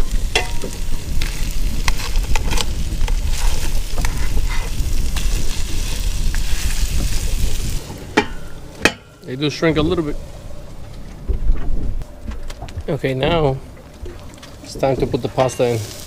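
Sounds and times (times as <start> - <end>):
lobster sizzling in a pan: 0.0 - 8.8, 15.6 - 16.0
low steady rumble: 0.0 - 15.4.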